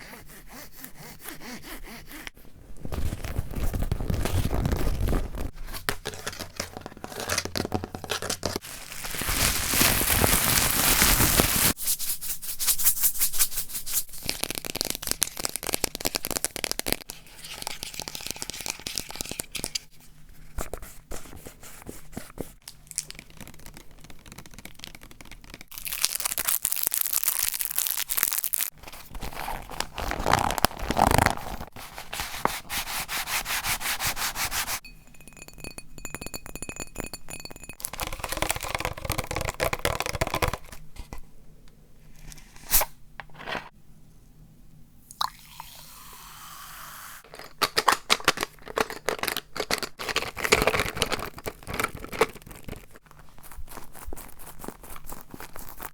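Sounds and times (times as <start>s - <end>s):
hands rubbing and scratching objects: 0.0s - 19.9s, 20.5s - 34.8s, 37.0s - 41.2s, 47.4s - 55.9s.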